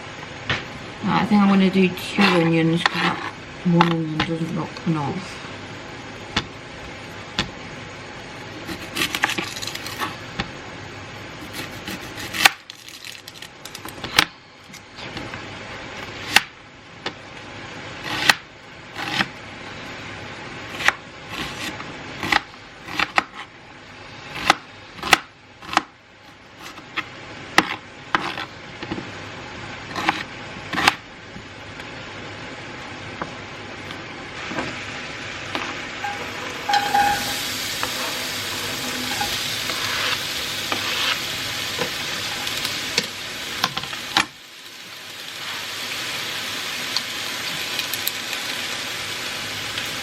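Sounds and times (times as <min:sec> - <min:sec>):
knife chopping onion on board: 0:20.7 - 0:23.5, 0:24.4 - 0:25.9, 0:29.9 - 0:31.0.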